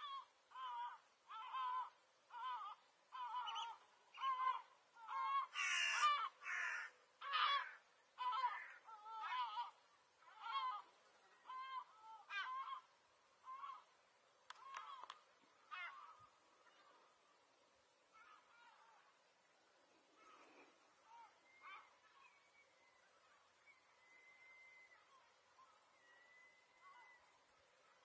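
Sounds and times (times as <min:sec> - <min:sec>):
bird calling with wavering cries: 0:00.0 - 0:17.4, 0:18.1 - 0:28.0.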